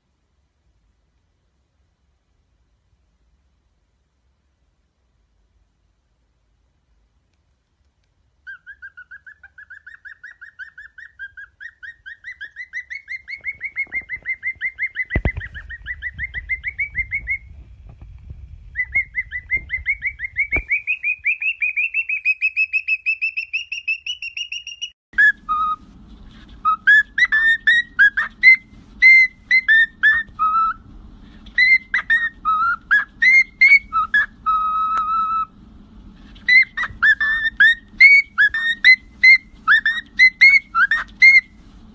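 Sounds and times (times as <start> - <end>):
parrot whistling and chirping: 8.4 - 17.6, 18.7 - 35.6, 36.3 - 41.6.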